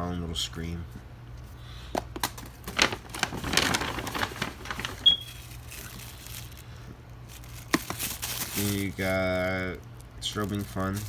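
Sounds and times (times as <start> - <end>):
packages rustling and tapping: 1.9 - 6.7, 7.3 - 9.2.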